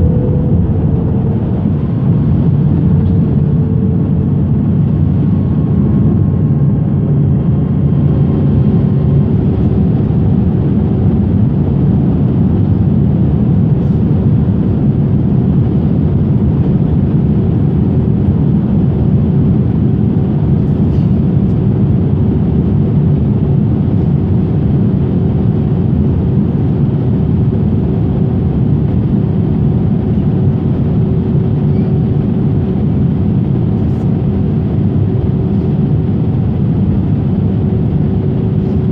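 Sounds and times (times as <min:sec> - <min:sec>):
faint steady hum: 0:00.0 - 0:14.4
airliner cabin engine rumble: 0:00.0 - 0:38.9.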